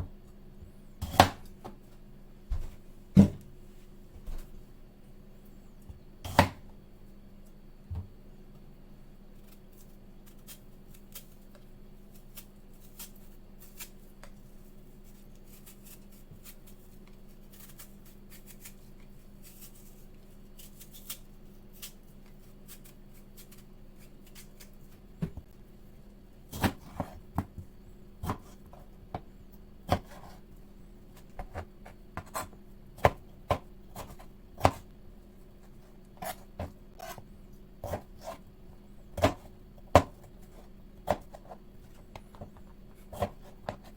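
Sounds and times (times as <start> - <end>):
steady low hum: 0.0 - 43.9
knife chopping on cutting board: 1.0 - 1.8, 6.2 - 6.6, 26.5 - 29.2, 29.9 - 30.4, 31.2 - 34.9, 36.2 - 37.2, 37.8 - 38.4, 39.2 - 43.9.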